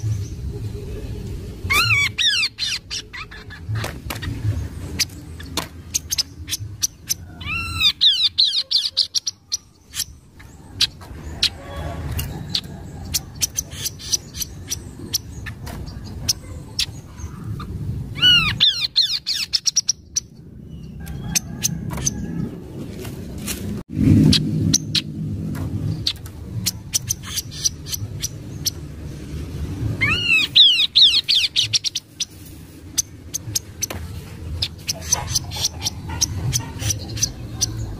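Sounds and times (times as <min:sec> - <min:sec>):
low steady rumble: 0:00.0 - 0:37.9.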